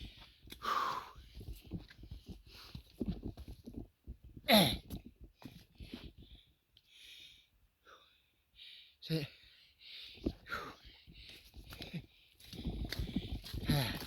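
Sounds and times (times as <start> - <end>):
person breathing heavily: 0.0 - 1.6, 5.8 - 14.0.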